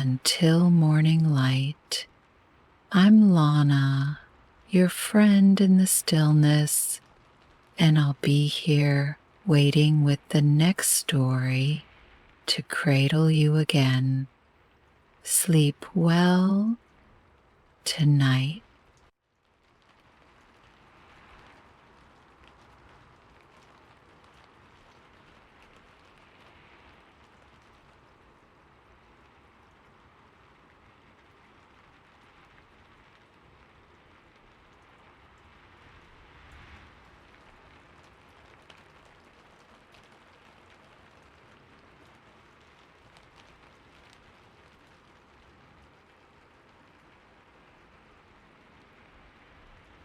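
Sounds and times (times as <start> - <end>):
faint steady rain hiss: 0.0 - 50.0
soft raindrop ticks: 18.6 - 50.0.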